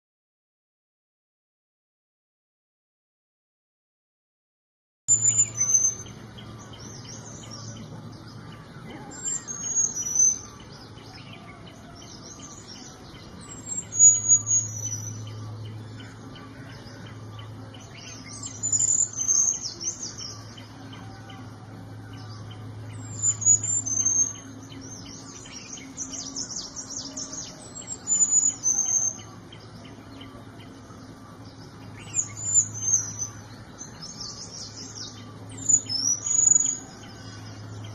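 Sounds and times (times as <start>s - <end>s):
low hum: 5.1s - 37.9s
bird singing high thin phrases: 9.0s - 21.4s, 22.2s - 37.9s.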